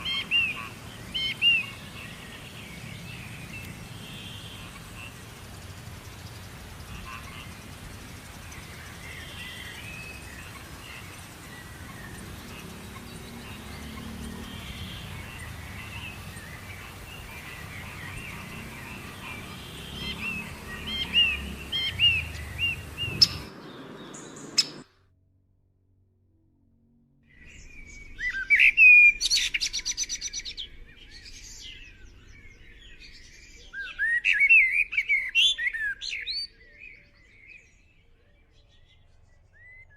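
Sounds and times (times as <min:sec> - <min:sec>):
low rumble of breeze: 0:00.0 - 0:24.8
bird trill: 0:00.0 - 0:24.9, 0:27.4 - 0:37.8
small birds chirping: 0:00.0 - 0:24.9, 0:27.4 - 0:39.9.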